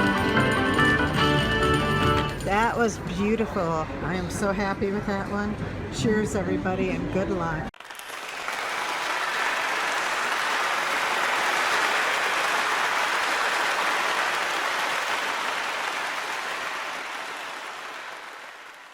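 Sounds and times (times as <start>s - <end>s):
applause: 7.8s - 18.9s.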